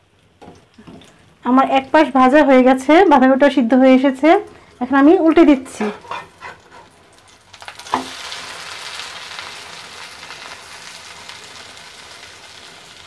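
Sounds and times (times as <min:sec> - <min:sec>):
omelette sizzling in oil: 0:00.0 - 0:13.0.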